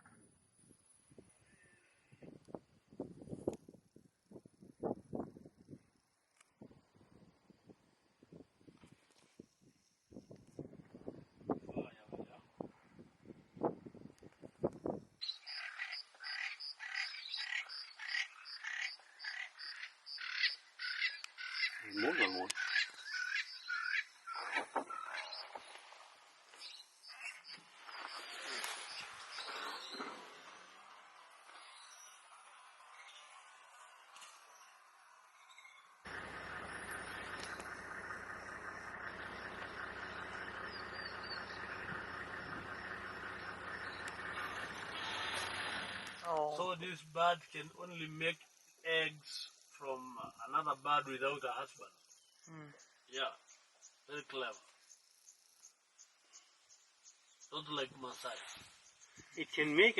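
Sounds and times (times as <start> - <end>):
outdoor background hiss: 0.2 - 59.9
wind rumble on microphone: 0.6 - 5.9, 6.6 - 15.2
bird calling repeatedly: 15.2 - 25.6
faint high bird chirps: 15.2 - 25.8, 34.2 - 36.0, 36.8 - 45.4.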